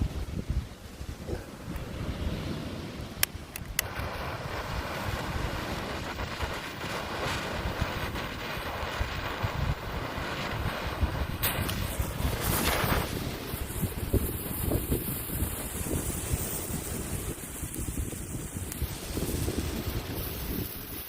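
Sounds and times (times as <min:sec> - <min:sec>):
wind rumble on microphone: 0:00.0 - 0:21.0
handheld firework hissing: 0:01.1 - 0:21.0
sharp clicks: 0:03.2 - 0:04.0.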